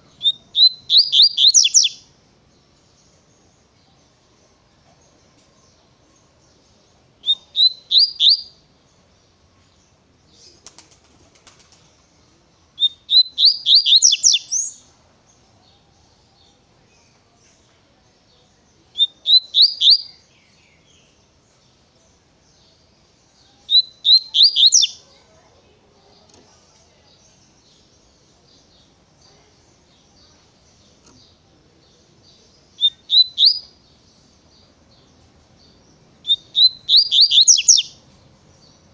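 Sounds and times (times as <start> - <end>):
bird singing whistled phrases: 0.1 - 2.1, 7.2 - 8.6, 12.8 - 14.8, 18.9 - 20.4, 23.6 - 25.0, 32.8 - 33.7, 36.2 - 38.0.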